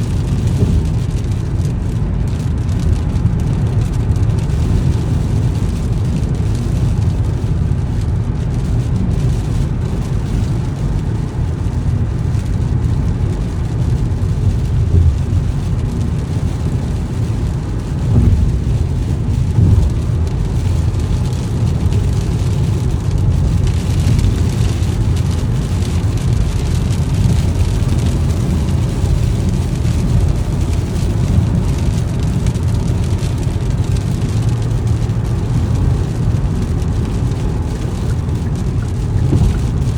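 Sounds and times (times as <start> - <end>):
rain on car: 0.0 - 39.9
tyres and road noise: 0.0 - 39.9
low thumps: 14.7 - 15.6, 17.0 - 20.8, 38.9 - 39.9.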